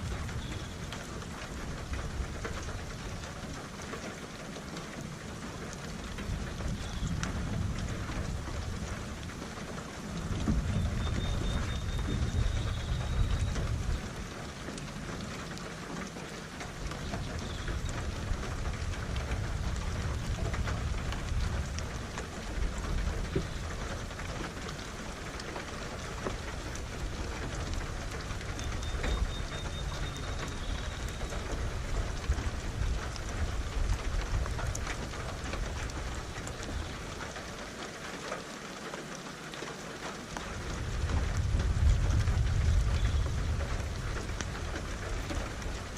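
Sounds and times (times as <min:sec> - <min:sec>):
heavy rain: 0:00.0 - 0:45.9
rolling thunder: 0:10.1 - 0:14.3, 0:17.2 - 0:25.2, 0:40.5 - 0:45.9.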